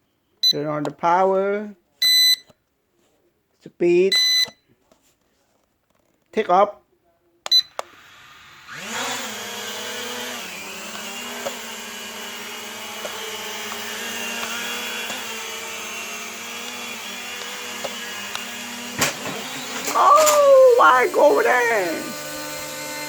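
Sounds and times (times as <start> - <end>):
toy drone motors buzzing: 7.9 - 23.0.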